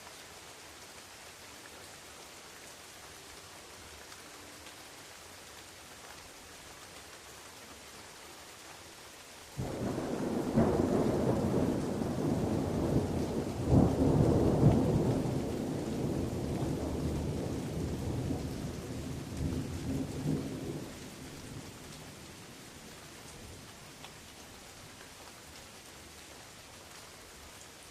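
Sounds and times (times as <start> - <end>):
steady rain falling: 0.0 - 27.9
thunder rumbling and cracking: 9.6 - 20.9.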